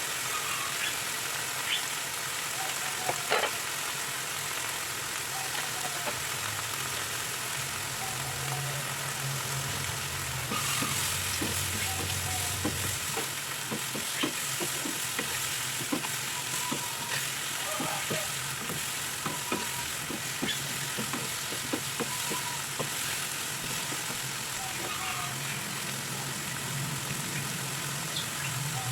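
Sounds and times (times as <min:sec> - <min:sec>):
food sizzling in a pan: 0:00.0 - 0:28.9
spatula scraping a pan: 0:10.4 - 0:25.0.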